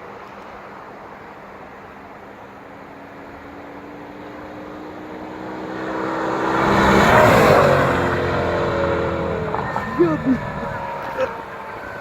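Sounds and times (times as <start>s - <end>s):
car exhaust passing by: 5.2s - 12.0s.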